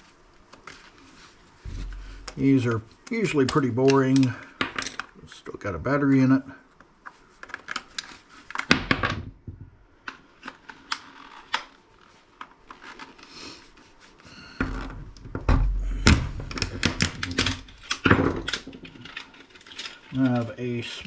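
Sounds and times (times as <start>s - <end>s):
low rumble: 1.7s - 2.6s.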